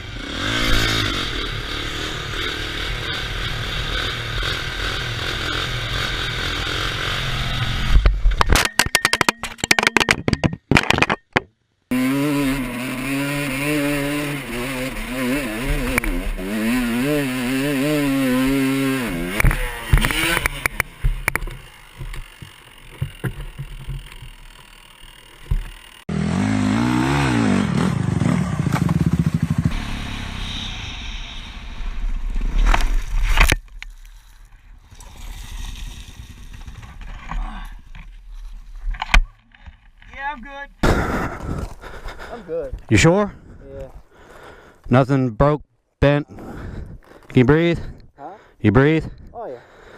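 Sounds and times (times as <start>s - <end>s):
dirt bike engines revving: 0.0s - 8.0s, 11.9s - 33.1s, 39.7s - 49.9s.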